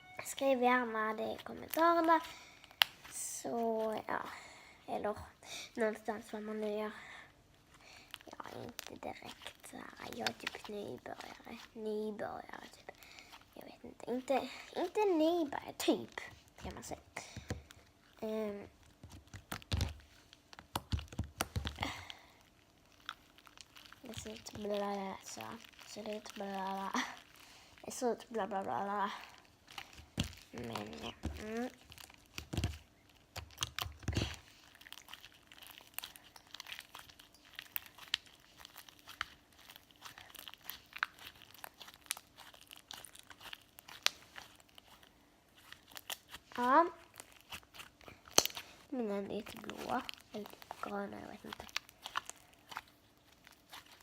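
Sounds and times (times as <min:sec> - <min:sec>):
slime squished by hand: 0:14.5 - 0:54.0
slime clicks and pops: 0:48.3 - 0:48.6.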